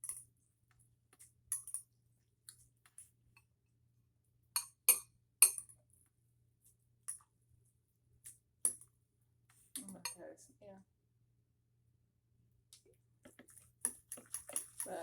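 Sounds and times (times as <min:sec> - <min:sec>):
utensil clinking against dish: 0:13.3 - 0:15.0.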